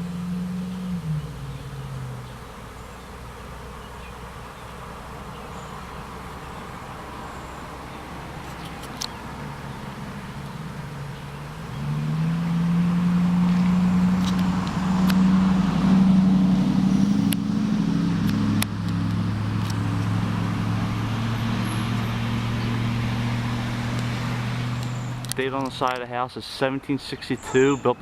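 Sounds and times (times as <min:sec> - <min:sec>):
vehicle engine humming: 0:00.0 - 0:28.0.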